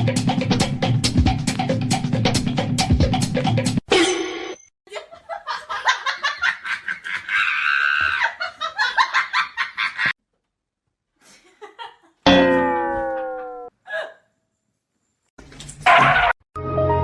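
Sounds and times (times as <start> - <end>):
person laughing: 4.9 - 10.1, 11.2 - 12.3.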